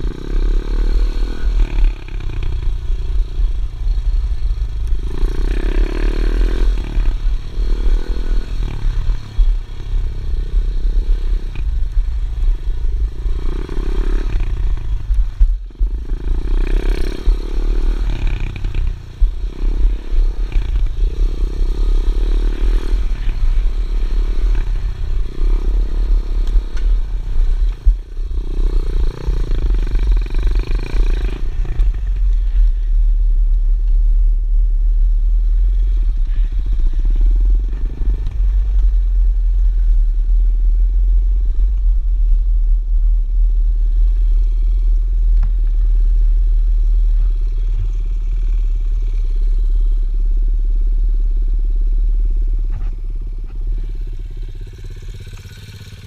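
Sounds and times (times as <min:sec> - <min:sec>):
pit bike engine revving: 0:00.0 - 0:32.9
wind rumble on microphone: 0:00.0 - 0:55.0.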